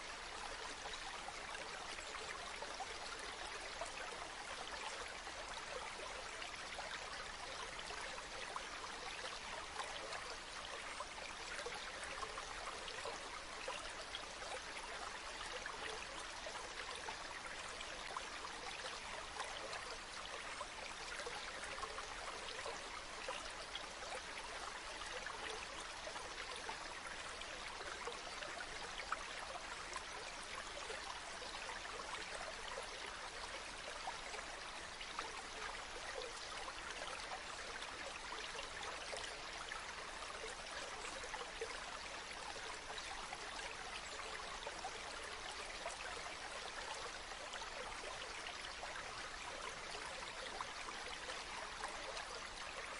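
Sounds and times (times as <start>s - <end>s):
stream flowing: 0.0s - 52.9s.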